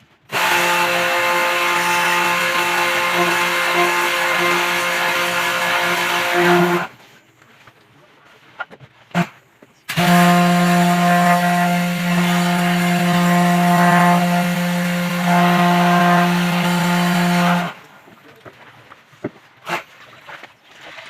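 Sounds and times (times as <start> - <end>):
machine buzzing hum: 0.3 - 6.9, 9.9 - 17.8.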